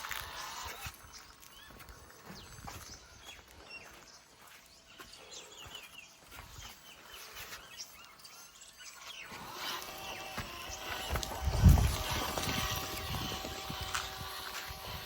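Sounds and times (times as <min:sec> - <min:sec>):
faint bird chirps: 0:00.4 - 0:11.1.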